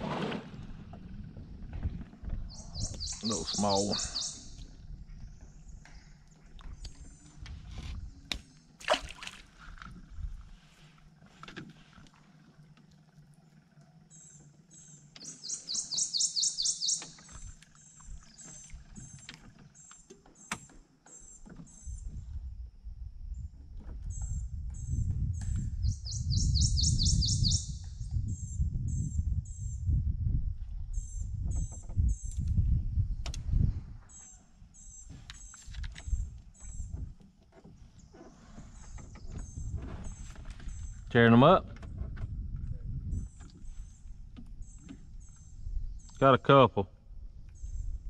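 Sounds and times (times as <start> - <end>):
small birds chirping: 2.5 - 7.3, 14.1 - 21.9, 24.8 - 28.4.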